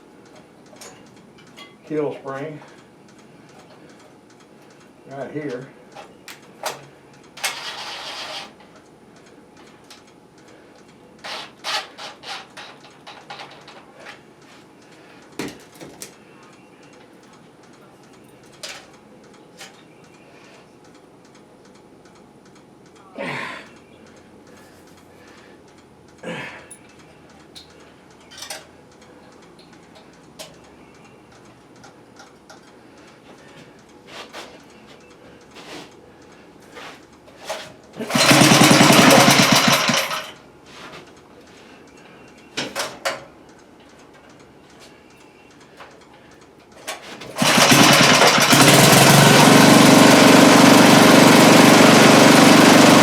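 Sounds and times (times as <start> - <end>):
clicks and knocks of hand work: 10.8 - 20.2, 26.7 - 49.2
small engine running loudly: 38.1 - 40.3, 47.4 - 53.0.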